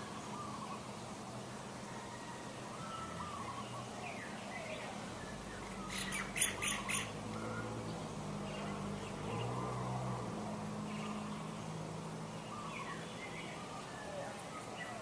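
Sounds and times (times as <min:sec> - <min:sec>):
birds calling: 0:00.0 - 0:15.0
harsh bird squawks: 0:05.9 - 0:07.1.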